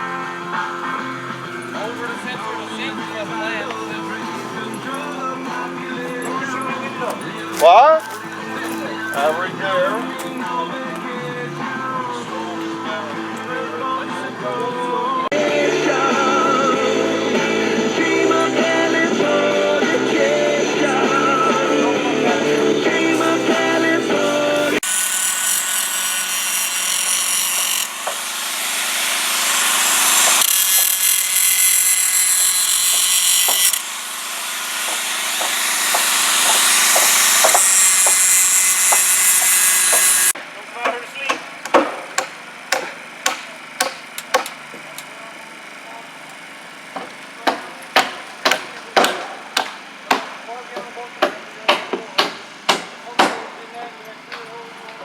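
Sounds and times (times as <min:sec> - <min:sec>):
power saw cutting wood: 0:00.0 - 0:55.0
hammer driving nails: 0:24.8 - 0:28.6, 0:29.6 - 0:45.1, 0:47.0 - 0:53.5.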